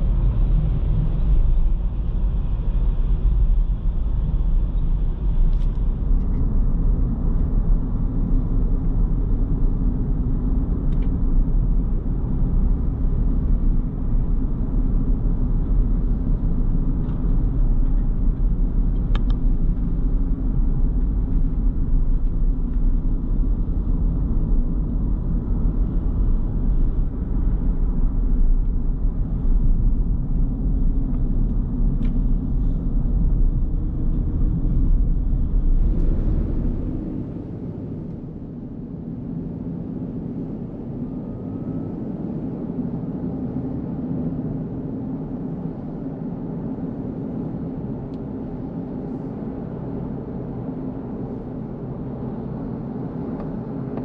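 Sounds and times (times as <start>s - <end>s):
motor vehicle rumbling: 0.0s - 54.0s.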